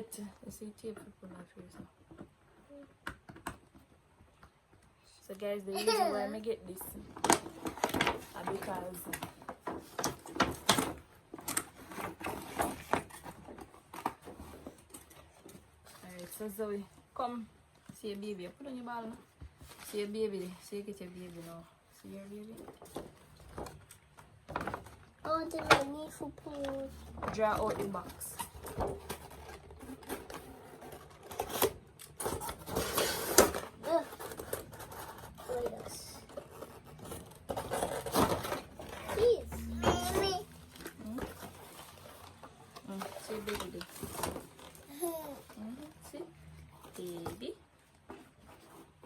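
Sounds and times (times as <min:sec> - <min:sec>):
packaging being handled and opened: 0:22.4 - 0:49.0.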